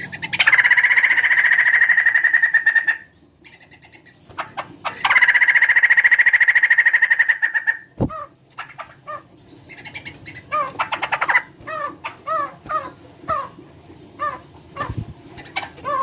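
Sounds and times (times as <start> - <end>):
bird rattling trill: 9.8 - 13.5.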